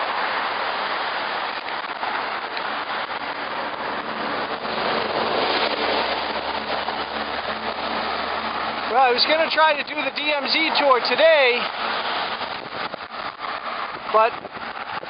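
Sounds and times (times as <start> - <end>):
road traffic rushing: 0.0 - 15.0
wind on microphone: 10.8 - 15.0.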